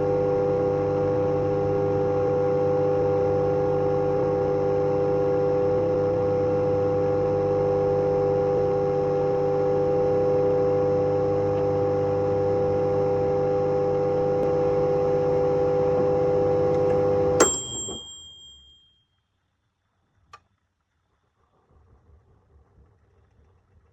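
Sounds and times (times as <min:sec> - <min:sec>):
microwave oven humming: 0:00.0 - 0:18.8
microwave click: 0:16.7 - 0:18.6.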